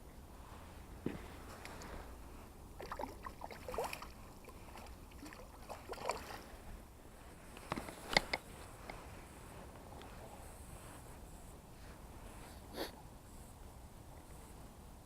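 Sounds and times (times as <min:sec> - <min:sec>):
water splashing and sloshing: 0:02.8 - 0:06.8.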